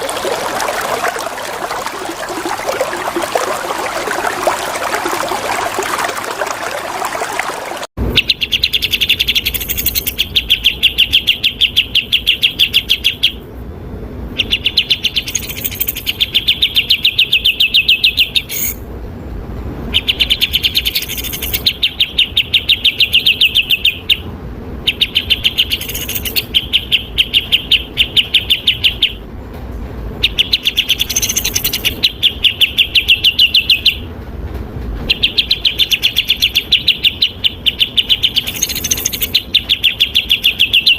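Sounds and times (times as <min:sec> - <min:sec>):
flowing water: 0:00.0 - 0:08.0
songbird chirping: 0:00.0 - 0:13.5, 0:14.4 - 0:18.8, 0:19.9 - 0:29.2, 0:30.2 - 0:34.1, 0:35.1 - 0:40.9.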